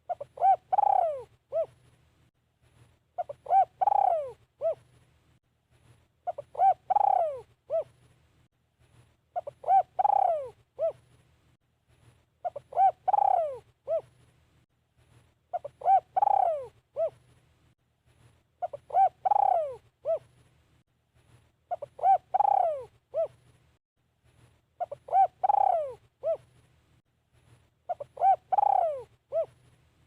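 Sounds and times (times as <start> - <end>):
dove cooing: 0.0 - 1.8, 3.2 - 4.9, 6.2 - 8.0, 9.4 - 11.0, 12.4 - 14.1, 15.5 - 17.2, 18.6 - 20.3, 21.7 - 23.4, 24.8 - 26.5, 27.9 - 29.6.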